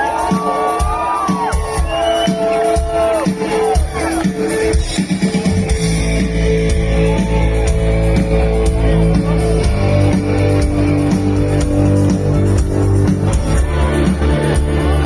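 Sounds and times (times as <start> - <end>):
steady drum beat: 0.0 - 15.0
electric guitar chords: 4.2 - 15.0.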